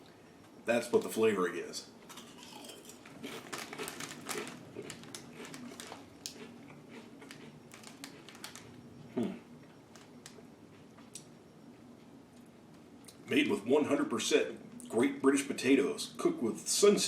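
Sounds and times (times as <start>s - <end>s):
crunching crisps: 2.1s - 10.4s.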